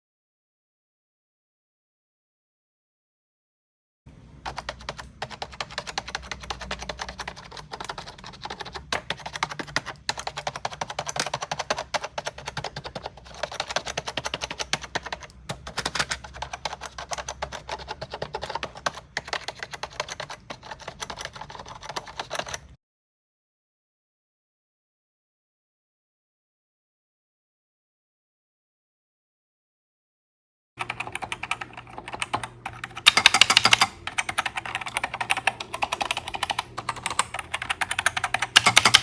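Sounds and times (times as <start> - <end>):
keyboard typing clicks: 4.4 - 22.8, 30.8 - 39.0.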